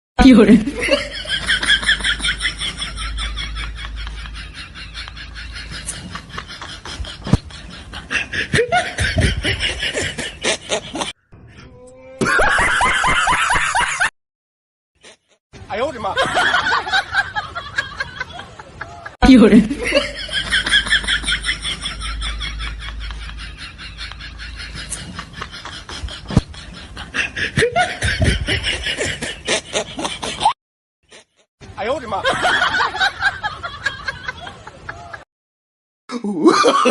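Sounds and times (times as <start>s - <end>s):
person snickering laugh: 0.6s - 11.1s, 12.2s - 14.1s, 36.2s - 36.9s
laughter in quick bursts: 0.6s - 11.2s, 12.2s - 14.1s, 16.2s - 31.5s.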